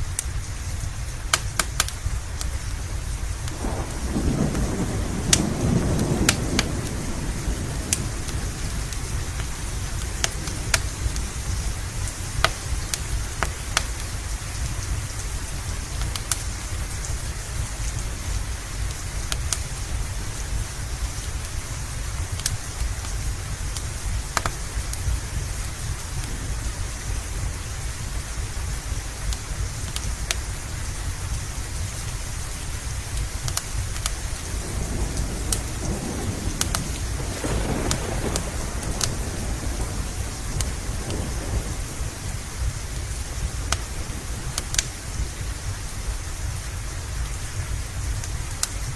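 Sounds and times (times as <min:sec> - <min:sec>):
heavy rain: 0:00.0 - 0:48.9
thunder rumble: 0:00.1 - 0:18.9, 0:21.4 - 0:29.8, 0:32.8 - 0:48.9
wood fire pops: 0:01.3 - 0:02.6, 0:03.4 - 0:07.0, 0:07.9 - 0:11.5, 0:23.8 - 0:24.6, 0:33.2 - 0:45.4.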